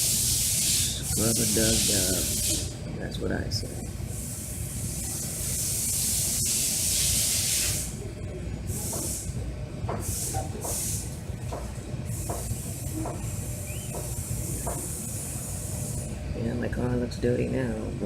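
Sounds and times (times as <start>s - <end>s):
spray jets hissing: 0.0s - 2.7s, 4.1s - 8.0s, 10.0s - 11.1s, 12.1s - 16.1s.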